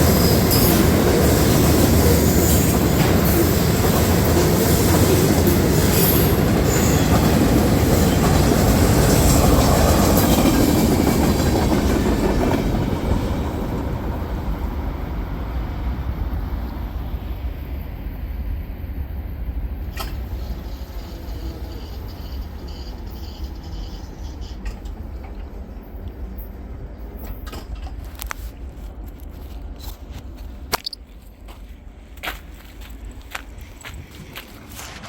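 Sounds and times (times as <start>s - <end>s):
freight train wheels rumbling on rail: 0.0s - 35.0s
sharp click: 30.7s - 31.0s.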